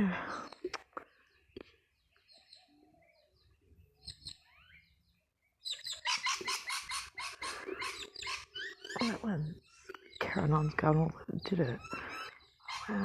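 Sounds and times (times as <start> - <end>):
bird chirping: 0.3 - 13.0
bird rapid repeated calls: 5.6 - 13.0.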